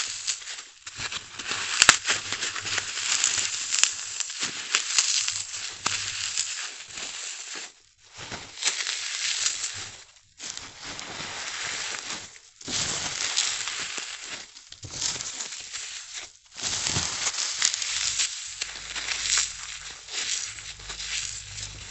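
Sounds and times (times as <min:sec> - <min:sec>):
floral foam crunching: 0:02.3 - 0:07.6, 0:14.2 - 0:21.9.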